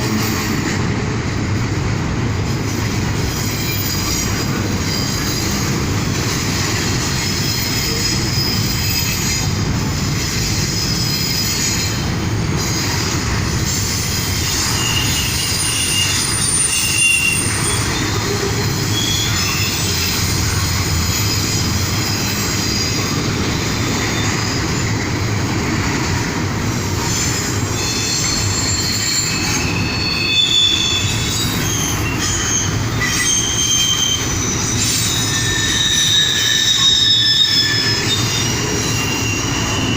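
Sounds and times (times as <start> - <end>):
train wheels rumbling on rails: 0.0 - 39.9
high-pitched wheel squeals: 14.3 - 20.6, 27.0 - 39.9.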